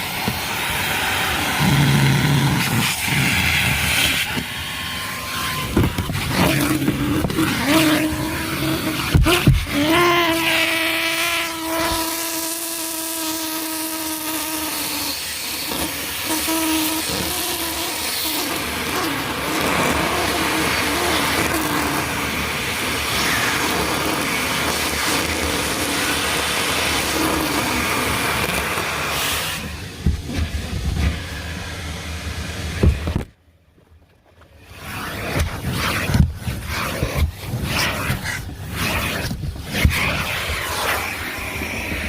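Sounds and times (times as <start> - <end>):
machine whine: 0.0 - 12.0
car wash rushing hiss: 0.0 - 33.4, 34.5 - 42.0.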